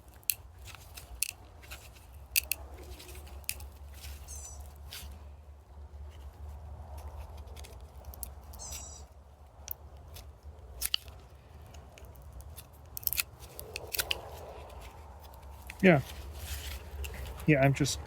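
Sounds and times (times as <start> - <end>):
short squeak: 8.6 - 9.1.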